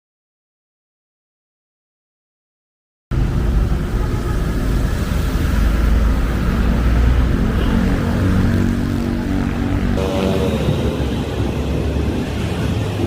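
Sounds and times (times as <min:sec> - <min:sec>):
traffic rumble: 0:03.1 - 0:13.0.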